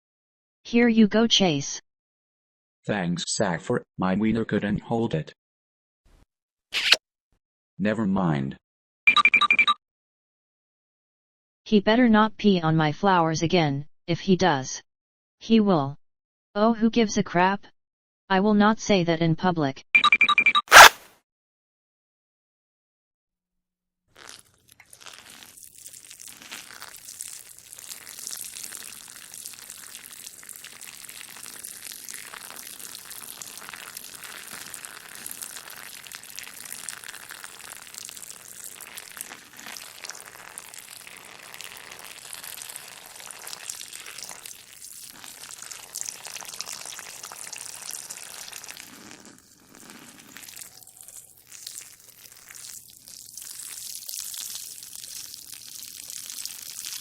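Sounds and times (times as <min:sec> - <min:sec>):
person urinating: 0:20.7 - 0:21.0, 0:24.1 - 0:57.0.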